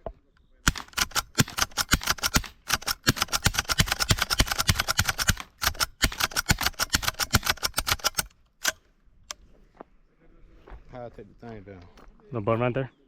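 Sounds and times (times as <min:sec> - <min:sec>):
rapid gunfire: 0:00.7 - 0:08.3.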